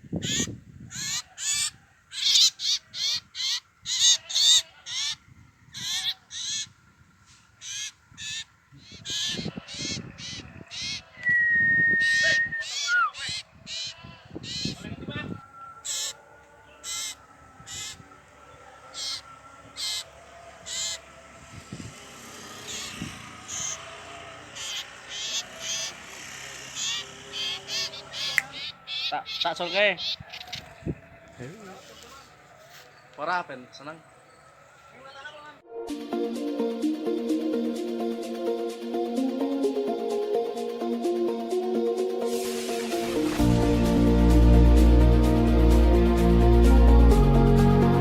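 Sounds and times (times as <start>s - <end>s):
bird giving harsh raspy calls: 0.1s - 15.1s, 15.8s - 21.2s, 22.0s - 35.3s.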